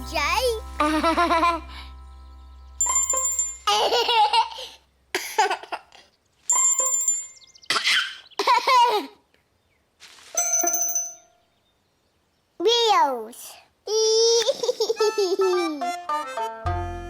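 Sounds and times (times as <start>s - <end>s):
bright bell ringing: 0.0s - 4.2s, 6.5s - 7.6s, 10.4s - 11.4s.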